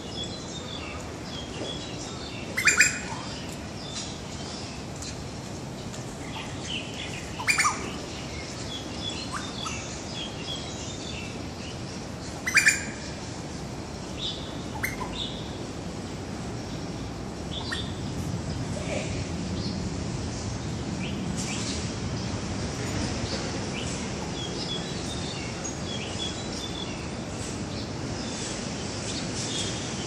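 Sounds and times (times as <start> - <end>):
birds chirping: 0.0 - 19.0, 21.0 - 30.0
loud sharp bird calls: 2.4 - 4.2, 6.3 - 13.5, 14.2 - 15.6, 17.5 - 18.2.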